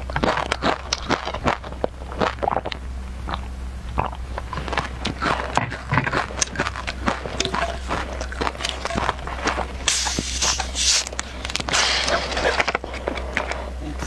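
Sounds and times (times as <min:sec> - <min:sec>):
crunching and chewing snacks: 0:00.0 - 0:13.9
bottle cap twisted open hiss: 0:09.9 - 0:11.1.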